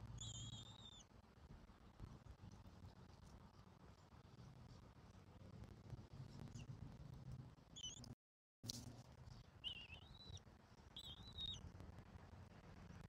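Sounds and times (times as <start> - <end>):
low background hum: 0.0 - 13.0
thin high-pitched bird calls: 0.2 - 1.1, 7.8 - 8.1, 9.6 - 10.4, 11.0 - 11.6.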